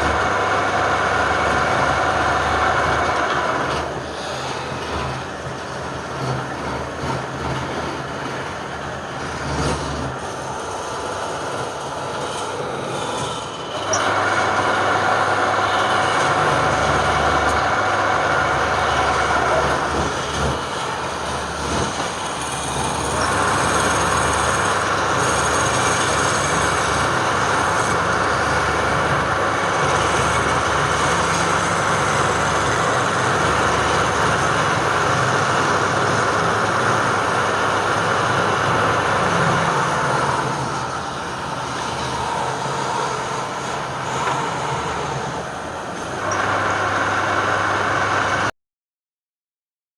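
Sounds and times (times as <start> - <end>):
machine cutting wood: 0.0 - 48.5
woodworking machine humming: 0.0 - 48.5.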